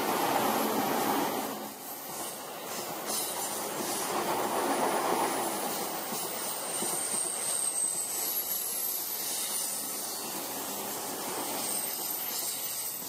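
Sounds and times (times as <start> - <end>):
train rushing past: 0.0 - 13.0
faint wheel squeal: 6.5 - 10.6.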